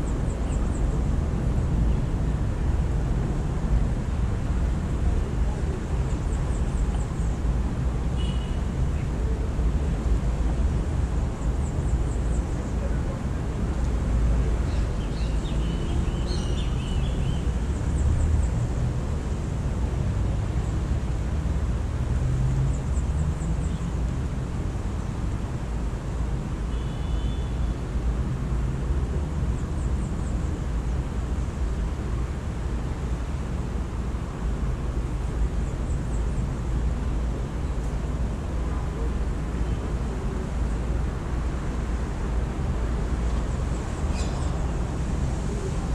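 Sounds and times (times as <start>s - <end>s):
city traffic rumble: 0.0s - 45.9s
small bird chirping: 44.1s - 44.5s.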